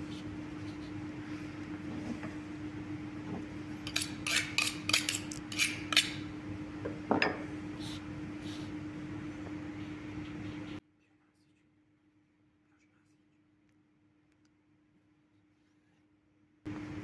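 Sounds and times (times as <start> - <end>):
steady low hum: 0.0 - 11.6, 16.7 - 17.0
metal utensils clinking: 3.8 - 6.3.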